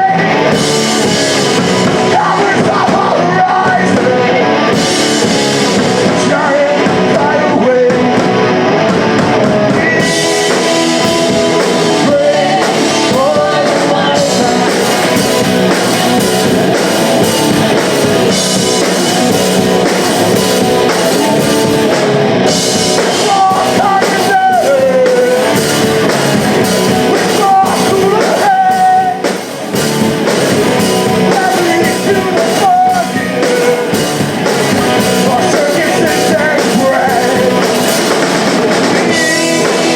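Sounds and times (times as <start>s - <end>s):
person singing: 0.0s - 8.4s, 9.6s - 16.3s, 22.5s - 29.4s, 30.7s - 39.9s
bass guitar: 0.0s - 39.9s
drum kit: 0.0s - 39.9s
loud electric guitars: 0.0s - 39.9s.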